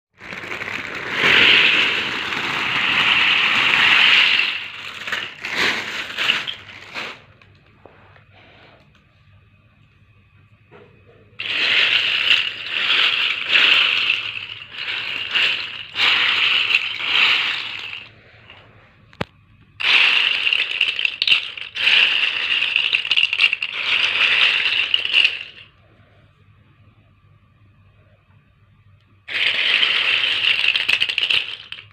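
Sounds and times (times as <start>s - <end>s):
plastic bottle caps rattling: 0.2s - 7.3s, 11.4s - 18.6s, 19.8s - 25.7s, 29.3s - 31.9s.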